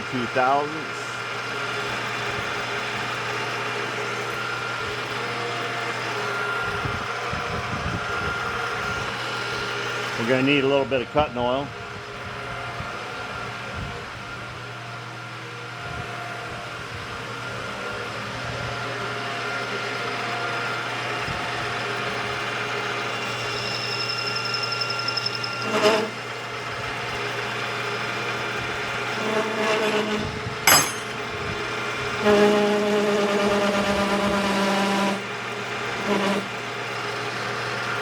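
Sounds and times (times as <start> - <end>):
metal lathe humming: 17.3 - 38.0
high squeal from cutting: 23.1 - 26.3.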